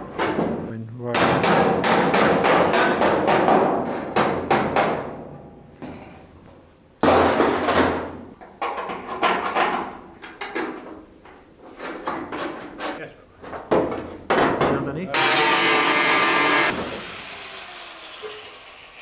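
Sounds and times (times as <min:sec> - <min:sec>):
hammer striking steel bodywork: 0:01.2 - 0:06.1.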